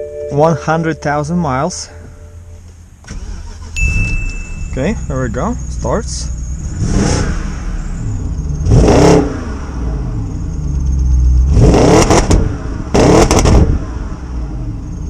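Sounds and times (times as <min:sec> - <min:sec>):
car engine revving: 0:04.7 - 0:15.0.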